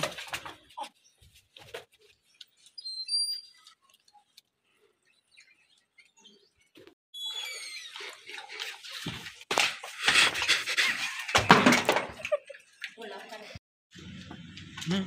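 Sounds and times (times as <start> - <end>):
high-pitched bird chirps: 2.8 - 3.8, 7.2 - 8.0.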